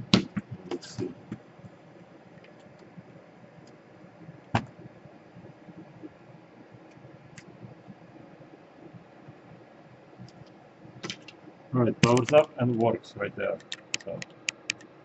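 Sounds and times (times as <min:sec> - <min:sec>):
laptop click: 0:12.0 - 0:12.5, 0:13.6 - 0:14.9.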